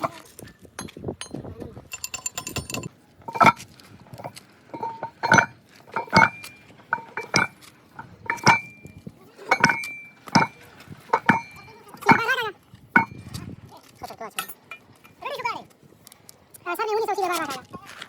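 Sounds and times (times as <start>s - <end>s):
hammer striking steel: 8.3s - 8.8s, 9.5s - 10.6s, 11.2s - 12.3s.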